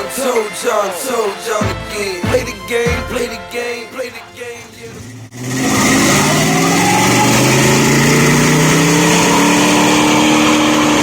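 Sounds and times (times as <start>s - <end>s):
engine revving: 4.1s - 11.0s.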